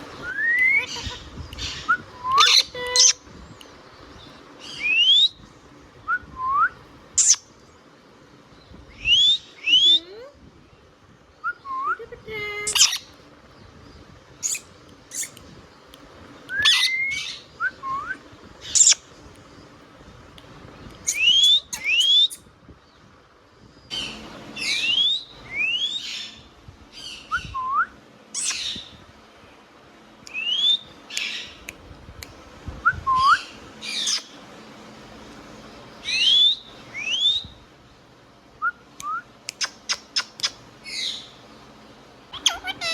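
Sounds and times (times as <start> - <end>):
parakeet whistles and chirps: 0.2 - 3.2, 4.6 - 5.4, 6.1 - 7.4, 12.7 - 13.1, 14.4 - 15.4, 16.5 - 19.0, 21.1 - 22.4, 23.9 - 26.3, 27.0 - 28.9, 30.3 - 31.5, 32.9 - 34.3, 36.0 - 37.6, 42.3 - 42.9.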